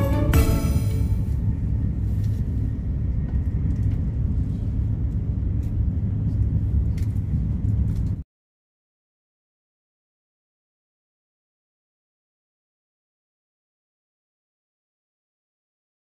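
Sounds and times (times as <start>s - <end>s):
train rumble from inside: 0.0s - 8.2s.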